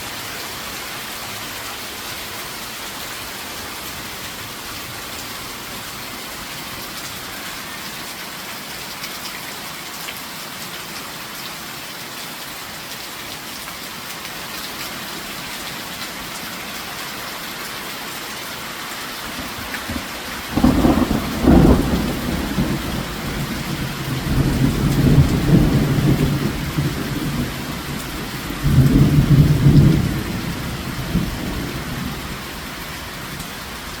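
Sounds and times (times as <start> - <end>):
rain falling: 0.0 - 34.0
low rumble of thunder: 19.5 - 32.5.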